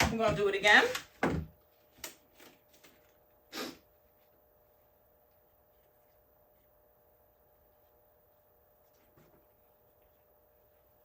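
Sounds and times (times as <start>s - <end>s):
short puff of air: 3.5s - 3.9s.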